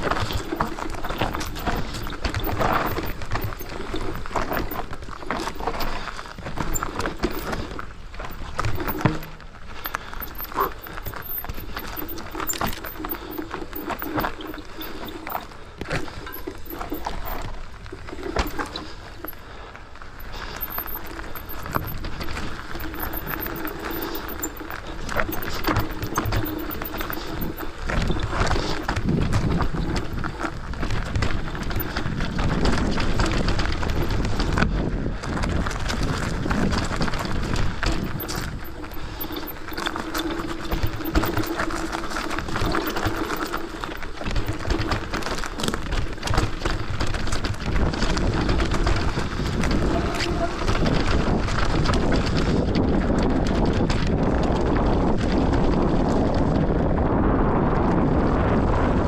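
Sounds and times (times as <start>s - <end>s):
bike rattling over rough trail: 0.0s - 59.0s
tyre rumble: 0.0s - 59.0s
wind on microphone: 20.3s - 59.0s.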